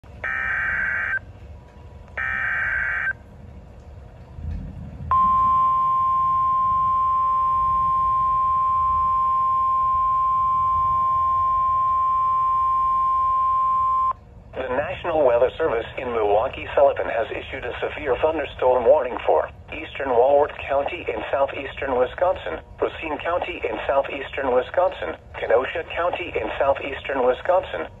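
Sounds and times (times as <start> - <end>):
steady warning alarm tone: 0.1 - 1.5, 2.1 - 3.2, 5.1 - 15.8
digital data bursts: 0.2 - 1.2, 2.2 - 3.2.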